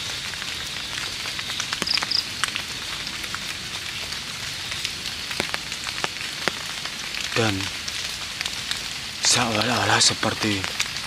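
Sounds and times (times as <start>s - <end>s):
light drizzle: 0.0s - 11.0s
sharp drips: 0.0s - 11.0s.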